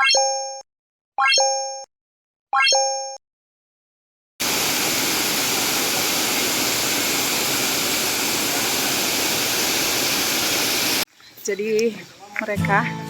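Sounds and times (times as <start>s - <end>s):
waterfall rushing: 4.4s - 11.0s.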